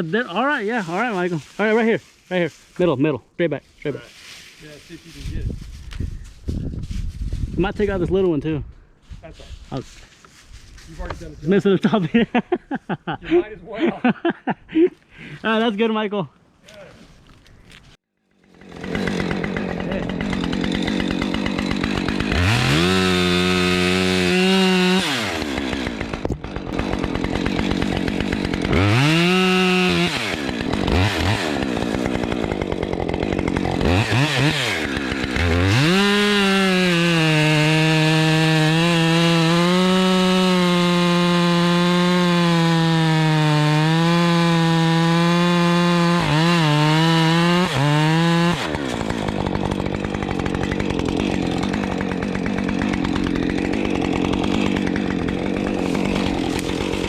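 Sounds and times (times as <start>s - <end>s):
chainsaw revving and cutting wood: 0.0s - 2.0s, 11.0s - 12.7s, 18.3s - 57.0s.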